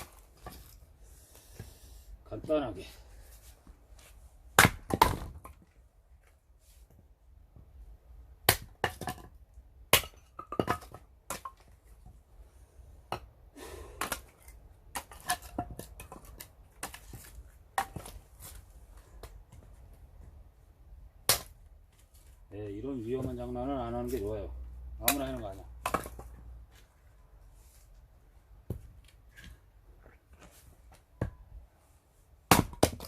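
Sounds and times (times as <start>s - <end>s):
axe striking firewood: 0.0s - 0.8s, 4.5s - 5.6s, 8.3s - 11.8s, 13.9s - 18.6s, 21.2s - 21.6s, 25.0s - 26.4s, 28.6s - 29.6s, 32.5s - 33.0s.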